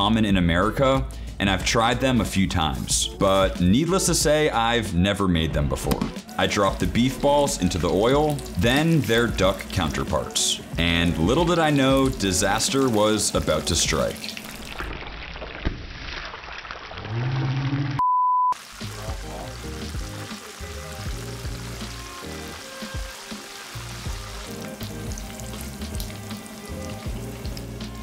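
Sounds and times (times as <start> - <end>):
slow background music: 0.0 - 14.6, 18.6 - 28.0
food sizzling in frying oil: 6.2 - 17.0, 18.6 - 28.0
censor bleep: 17.9 - 18.6.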